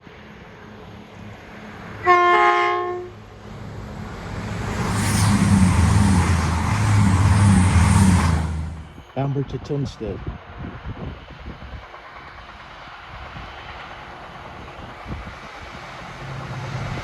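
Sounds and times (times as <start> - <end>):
train engine running: 0.2 - 17.0
train horn: 2.0 - 3.2
train wheels on rails: 3.2 - 17.0.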